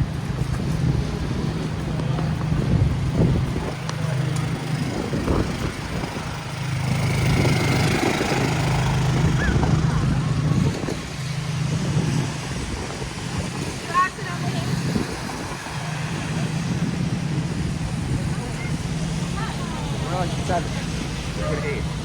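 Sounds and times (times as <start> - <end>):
vehicle engine humming: 0.0 - 22.0
people talking indistinctly: 13.6 - 22.0.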